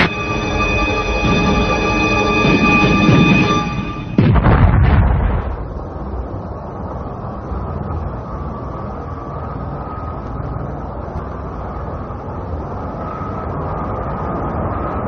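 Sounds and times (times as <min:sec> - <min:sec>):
spaceship engine drone: 0:00.0 - 0:15.0.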